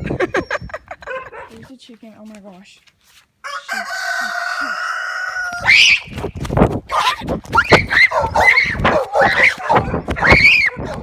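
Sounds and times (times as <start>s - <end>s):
high cry: 6.9s - 11.0s.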